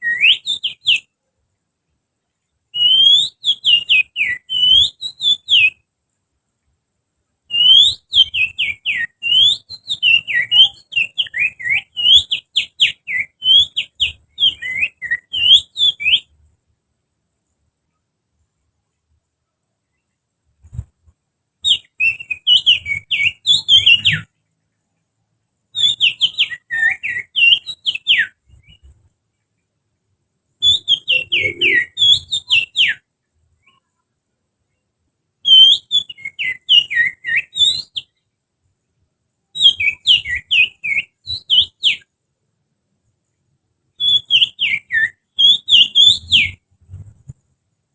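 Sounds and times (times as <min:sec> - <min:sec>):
finger whistling birdsong: 0:00.0 - 0:01.1, 0:02.8 - 0:05.8, 0:07.5 - 0:16.3, 0:21.6 - 0:24.3, 0:25.8 - 0:29.0, 0:30.6 - 0:33.0, 0:35.5 - 0:38.2, 0:39.6 - 0:42.1, 0:44.0 - 0:47.3.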